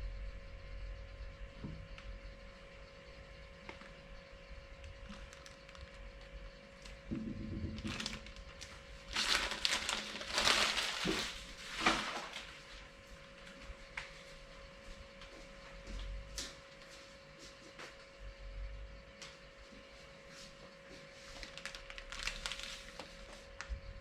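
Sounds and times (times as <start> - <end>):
packaging crinkling and rustling: 4.8 - 7.0, 7.6 - 12.8, 21.3 - 23.7.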